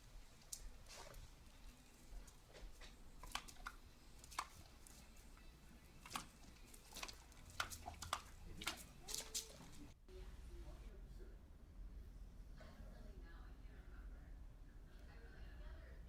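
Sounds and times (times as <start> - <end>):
light clicks and taps: 0.3 - 10.0.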